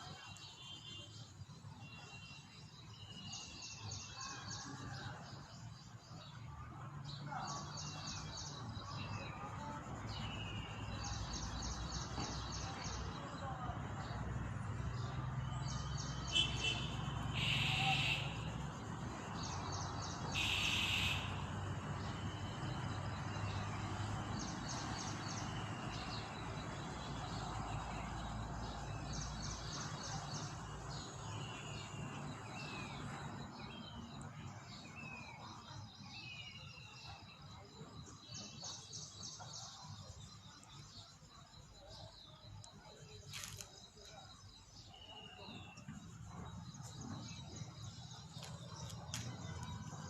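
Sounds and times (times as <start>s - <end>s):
small birds chirping: 7.1s - 50.0s
loud high bird call: 16.3s - 18.5s, 20.3s - 21.5s.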